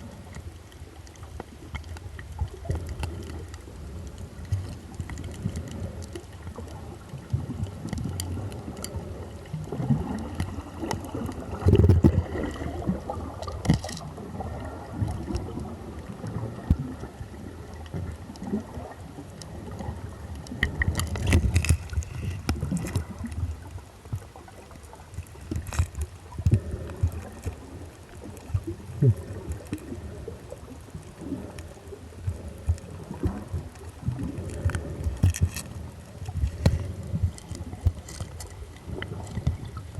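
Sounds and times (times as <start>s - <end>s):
muffled water sloshing: 0.0s - 39.9s
sharp clicks and knocks: 35.0s - 35.7s, 36.4s - 38.6s.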